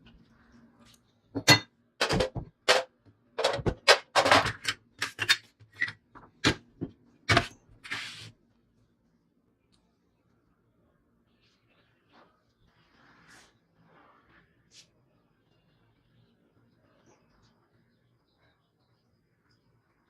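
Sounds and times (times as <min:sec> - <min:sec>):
hard parts knocking and clattering: 0:01.4 - 0:07.4.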